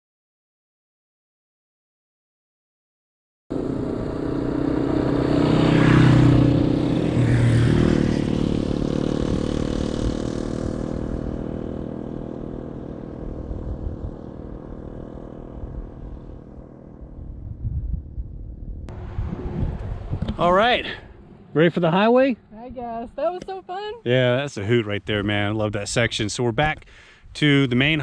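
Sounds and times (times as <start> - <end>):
motorcycles passing by: 3.5 - 24.8.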